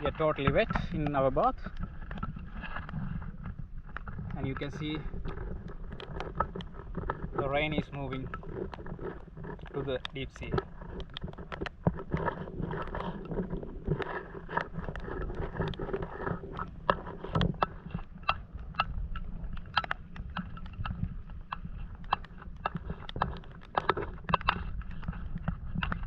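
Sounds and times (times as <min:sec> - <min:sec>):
wind rumbling on microphone: 0:00.0 - 0:26.0.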